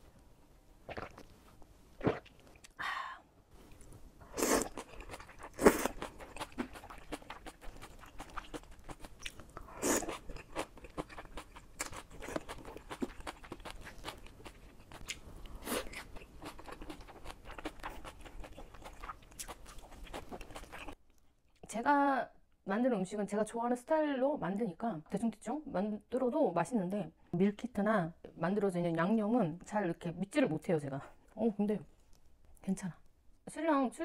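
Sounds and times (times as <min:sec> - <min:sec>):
chewing noodles: 0:03.7 - 0:21.2.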